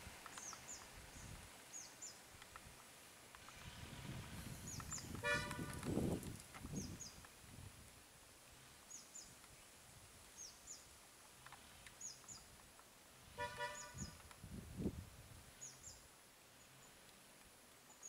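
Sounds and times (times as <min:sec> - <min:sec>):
brief horn-like toot: 0:05.2 - 0:05.8, 0:13.4 - 0:14.1.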